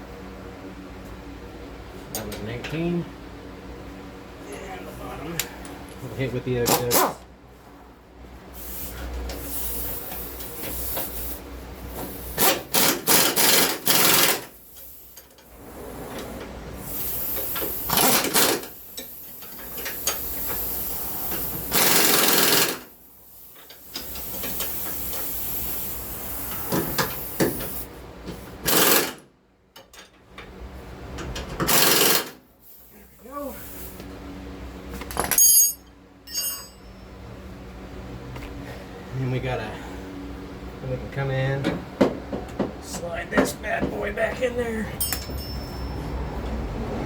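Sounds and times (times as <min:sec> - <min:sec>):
impact wrench rapid clatter: 0:12.3 - 0:14.5, 0:16.9 - 0:18.8, 0:19.4 - 0:22.9, 0:28.6 - 0:29.2, 0:31.6 - 0:32.4.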